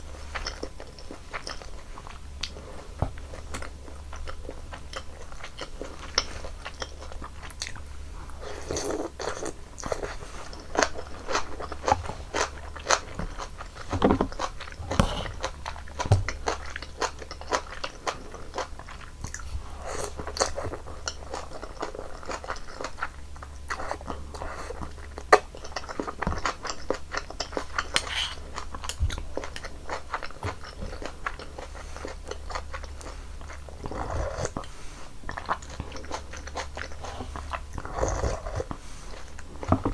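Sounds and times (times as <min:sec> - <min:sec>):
chewing with wet clicks: 0:00.0 - 0:39.9.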